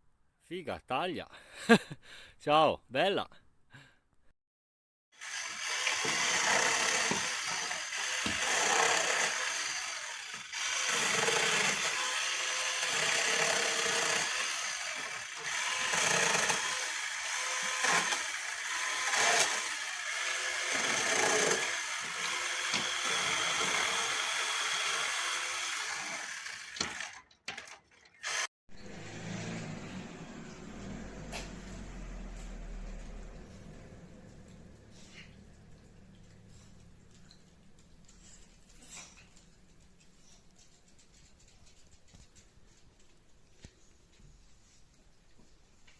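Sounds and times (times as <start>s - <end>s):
chainsaw cutting wood: 5.2s - 28.5s
low hum: 28.8s - 37.0s.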